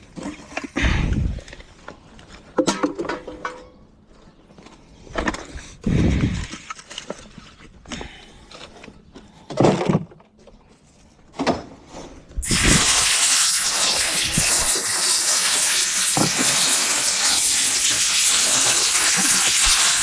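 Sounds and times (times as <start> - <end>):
steady loud hiss: 12.4 - 20.0.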